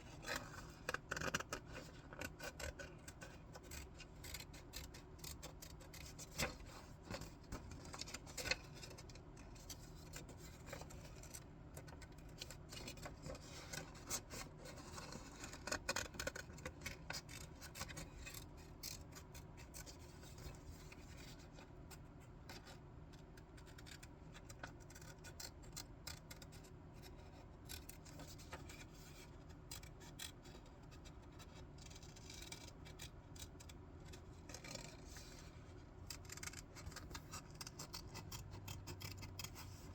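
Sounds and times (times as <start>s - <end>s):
scissors snipping paper: 36.1s - 39.9s.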